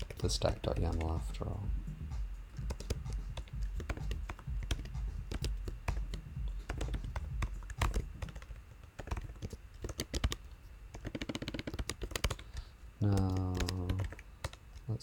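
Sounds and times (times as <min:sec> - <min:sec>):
typing on computer keyboard: 0:00.0 - 0:01.6, 0:02.5 - 0:15.0.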